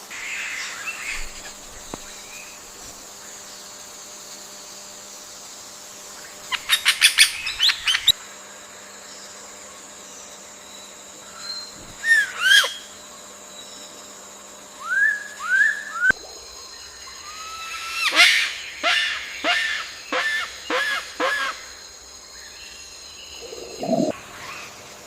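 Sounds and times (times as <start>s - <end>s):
insect drone: 0.0s - 25.0s
birds calling: 23.3s - 24.8s.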